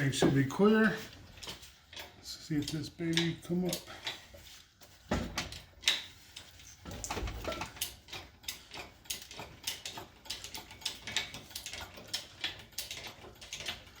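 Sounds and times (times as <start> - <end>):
ratchet clicking: 5.4 - 14.0.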